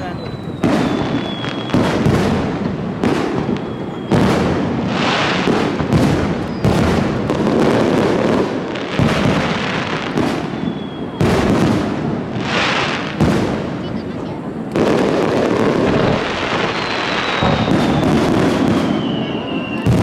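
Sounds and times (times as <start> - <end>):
crackling firework stars: 0.0 - 20.0
firework shells bursting with echo: 0.0 - 20.0.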